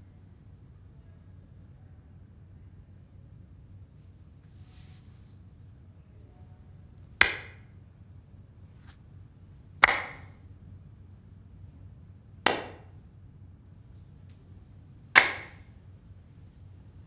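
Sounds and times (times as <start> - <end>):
sharp echoing bangs: 7.2 - 7.6, 9.8 - 10.3, 12.5 - 12.9, 14.6 - 17.0.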